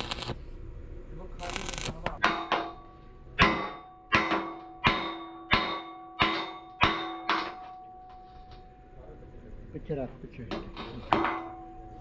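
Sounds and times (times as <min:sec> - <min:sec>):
hammer striking ringing steel: 0:02.2 - 0:08.1.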